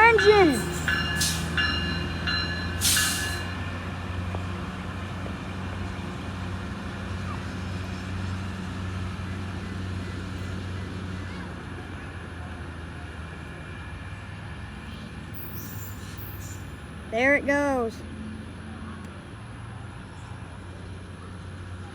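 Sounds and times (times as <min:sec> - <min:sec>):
ringing bell: 0:00.0 - 0:03.6
locomotive engine hum: 0:00.0 - 0:21.9.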